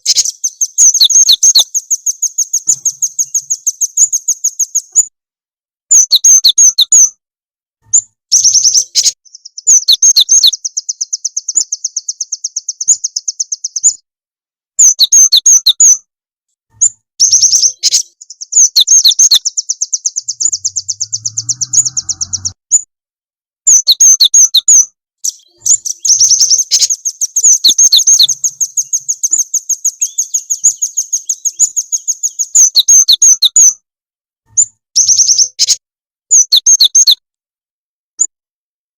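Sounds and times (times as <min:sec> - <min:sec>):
songbird chattering trills: 0:00.0 - 0:05.0, 0:08.0 - 0:14.0, 0:17.2 - 0:22.6, 0:23.7 - 0:33.7, 0:35.0 - 0:37.2.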